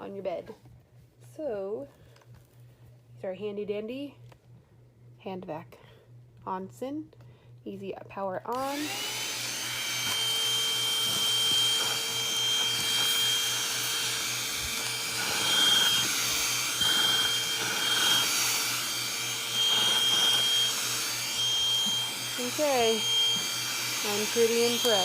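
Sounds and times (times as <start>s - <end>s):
handheld vacuum cleaner whining: 8.5s - 25.0s.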